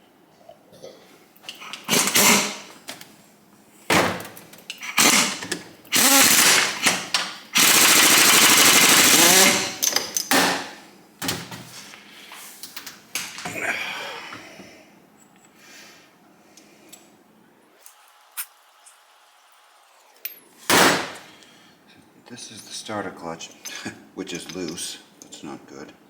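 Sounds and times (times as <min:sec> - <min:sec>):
impact wrench hammering: 0:01.8 - 0:02.7, 0:05.0 - 0:10.8, 0:20.7 - 0:21.3.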